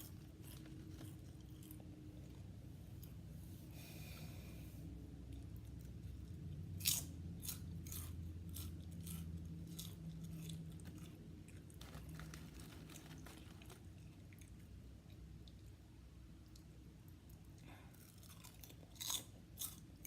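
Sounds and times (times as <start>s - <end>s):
potato chips crunching: 0.0s - 2.4s, 5.8s - 14.7s, 17.6s - 20.0s
low steady hum: 0.0s - 20.0s.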